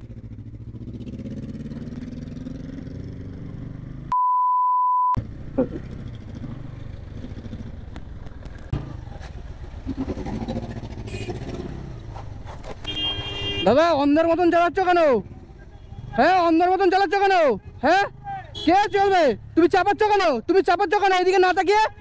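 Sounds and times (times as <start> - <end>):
motorcycle engine at low revs: 0.0 - 4.1, 5.2 - 13.6
censor bleep: 4.1 - 5.2.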